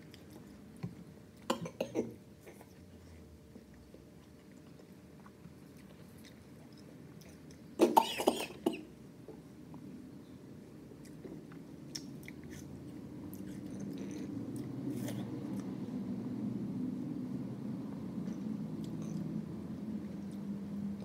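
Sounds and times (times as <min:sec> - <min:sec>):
person chewing fruit: 0:03.5 - 0:07.8, 0:11.0 - 0:15.8, 0:18.2 - 0:19.3.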